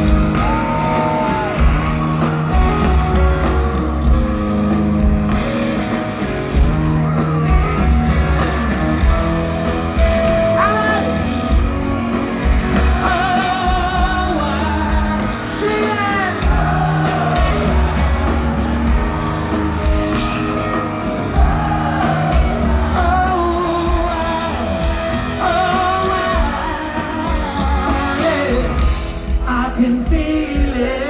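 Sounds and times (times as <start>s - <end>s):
live rock band: 0.0s - 31.0s
wordless vocals: 12.6s - 31.0s.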